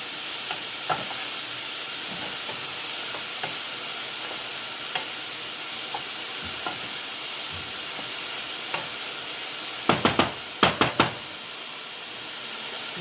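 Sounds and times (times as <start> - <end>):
food sizzling in a pot: 0.0 - 13.0
utensil knocking against pot: 9.9 - 11.2.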